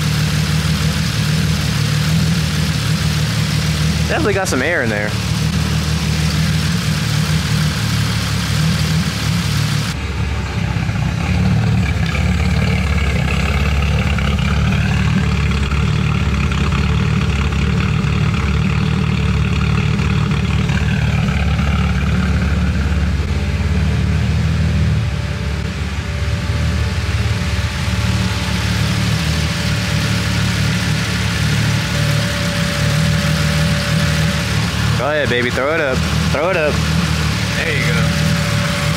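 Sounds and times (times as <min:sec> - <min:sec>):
car engine idling: 0:00.0 - 0:38.9
faint high tone: 0:24.9 - 0:38.9.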